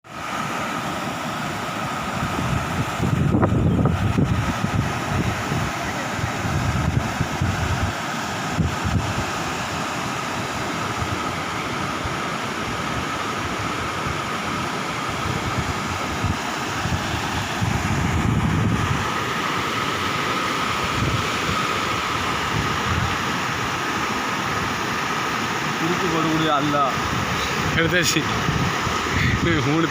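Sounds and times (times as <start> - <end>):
heavy rain pouring: 15.3 - 29.9.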